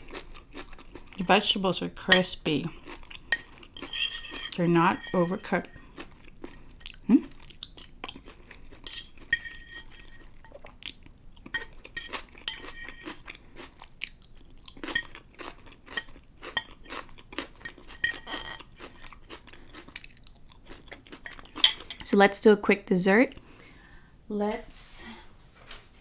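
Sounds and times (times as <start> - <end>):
chewing crunchy food: 0.0 - 22.0
cutlery clinking on plate: 3.3 - 5.4, 11.6 - 13.2, 17.6 - 18.6, 21.2 - 22.1.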